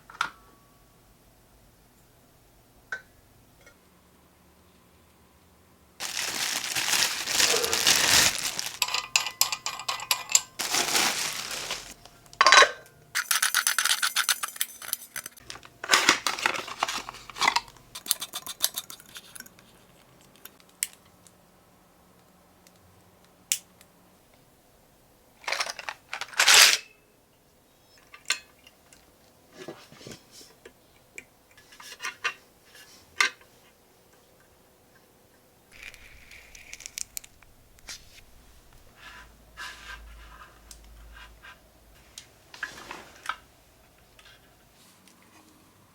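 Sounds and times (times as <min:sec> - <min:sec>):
rustling and scraping: 0:06.0 - 0:12.2, 0:14.8 - 0:20.5, 0:35.8 - 0:41.6, 0:42.5 - 0:43.5
hard objects clicking and knocking: 0:35.8 - 0:38.1.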